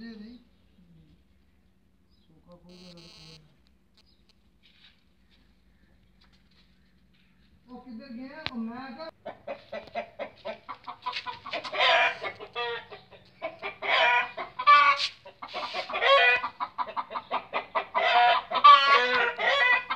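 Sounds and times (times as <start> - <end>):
domestic birds clucking: 9.1 - 19.9.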